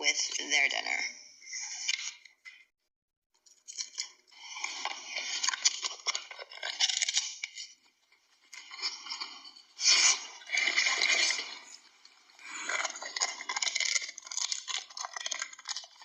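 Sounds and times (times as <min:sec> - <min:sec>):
dogs chewing and crunching food: 0:03.4 - 0:16.0.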